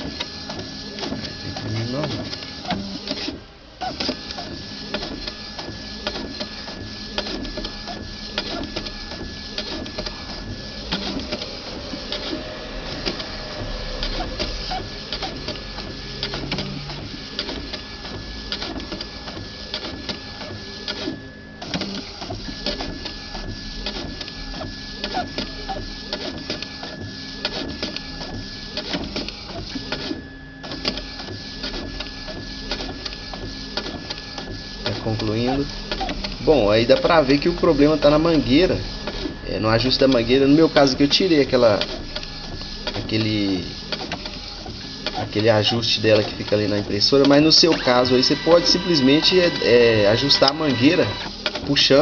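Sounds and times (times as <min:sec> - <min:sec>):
dense clicking of printer: 0:00.0 - 0:52.0
inkjet printer printing: 0:00.0 - 0:52.0
print-head carriage whine: 0:08.8 - 0:18.4, 0:47.7 - 0:51.3.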